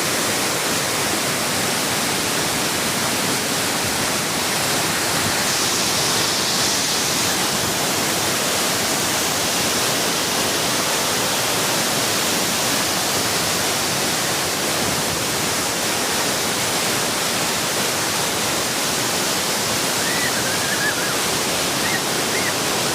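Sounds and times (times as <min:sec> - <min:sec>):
waterfall rushing: 0:00.0 - 0:22.9
faint high chirps: 0:21.8 - 0:22.6.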